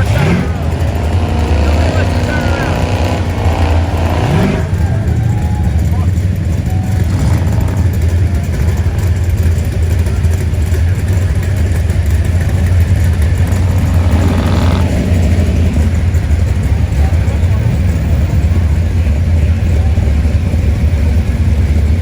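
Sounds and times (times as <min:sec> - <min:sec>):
rising engine whine: 0:00.0 - 0:18.8
car engine rumbling: 0:00.0 - 0:22.0.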